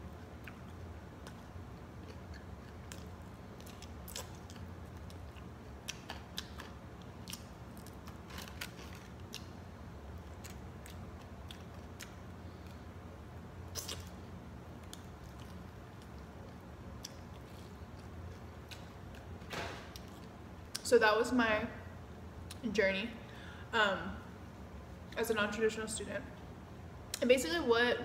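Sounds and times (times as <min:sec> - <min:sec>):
chewing chicken off the bone: 0:00.4 - 0:09.5.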